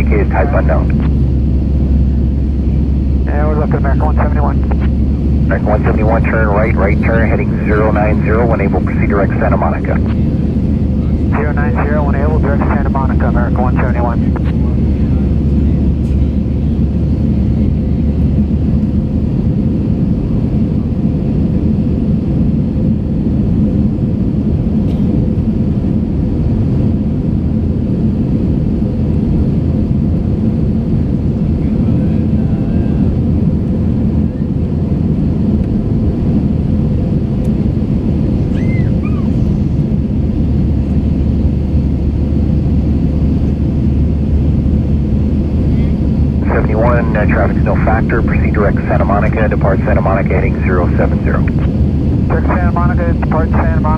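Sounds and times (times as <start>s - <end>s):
steady hum: 0.0s - 20.4s, 32.8s - 53.9s
aircraft cabin rumble: 0.0s - 53.9s.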